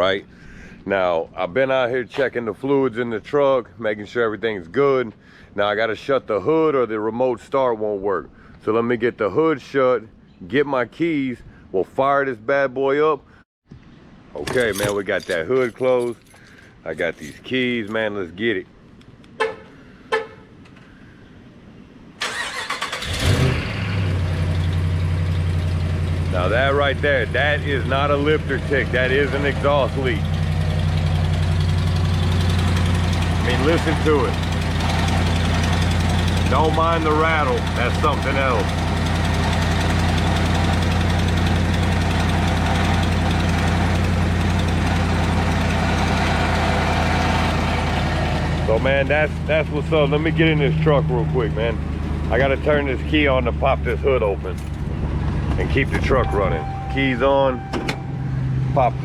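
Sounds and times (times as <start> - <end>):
car horn chirps: 19.4 - 20.6, 56.0 - 58.4
engine starter cranking: 22.2 - 23.7, 54.4 - 54.9
engine idling with ticking: 24.5 - 48.0.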